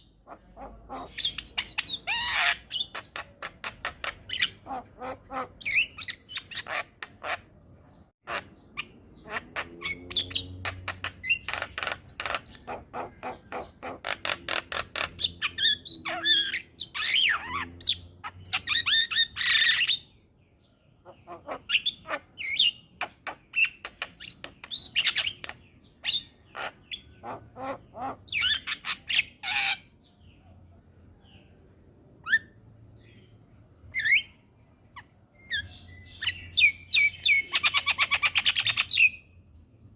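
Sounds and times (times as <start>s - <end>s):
bird clicking and squawking: 10.6s - 15.2s, 23.0s - 25.6s.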